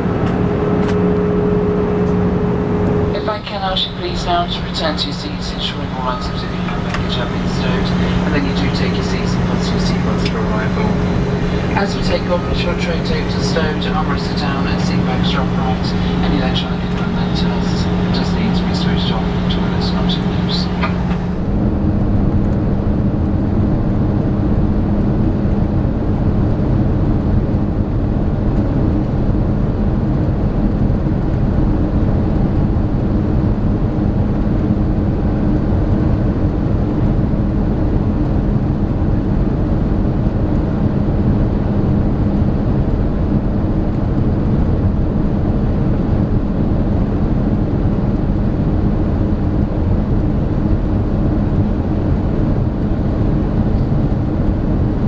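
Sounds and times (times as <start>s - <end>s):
cabin air rushing: 0.0s - 21.6s
constant low hum: 0.0s - 21.8s.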